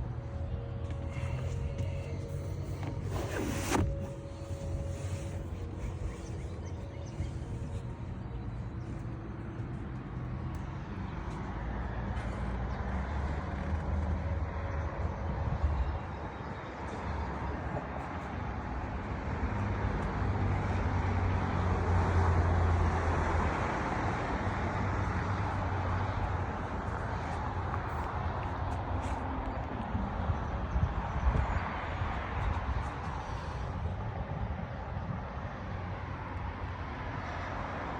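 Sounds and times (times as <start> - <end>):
outboard motor drone: 0.0 - 19.6
wind noise: 26.4 - 36.6.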